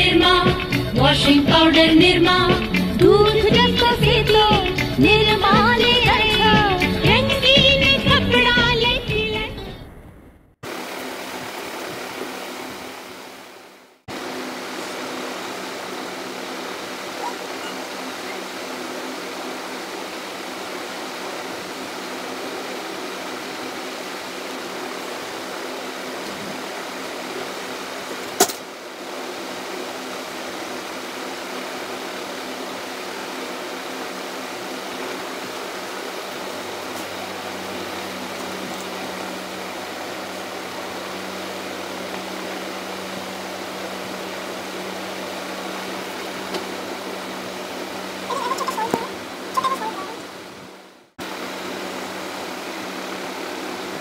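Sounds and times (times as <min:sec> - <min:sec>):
ventilation fan whirring: 0:00.0 - 0:54.0.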